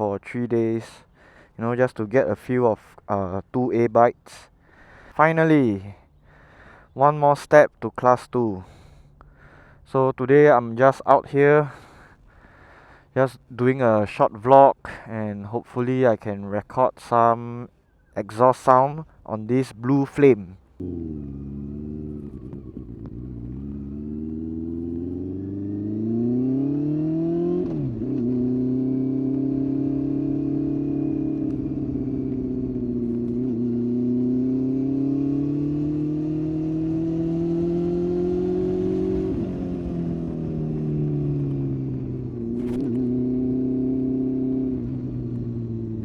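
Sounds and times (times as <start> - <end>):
motorcycle engine revving: 20.8 - 46.0.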